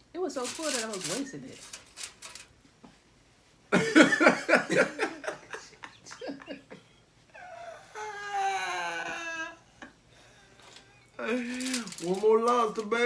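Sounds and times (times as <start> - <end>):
person laughing: 3.8 - 6.8.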